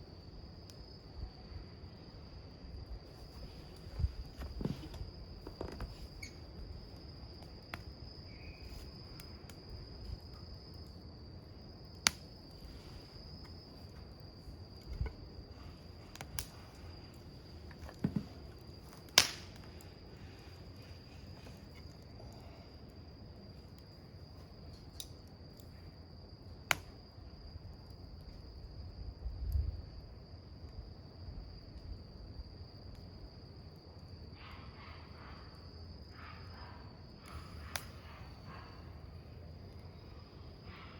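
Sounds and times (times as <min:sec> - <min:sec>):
campfire crackling: 0:01.9 - 0:34.4, 0:36.9 - 0:40.6
burning wood popping: 0:03.0 - 0:25.8, 0:37.3 - 0:38.0
insect trilling: 0:05.5 - 0:07.4, 0:08.0 - 0:09.4.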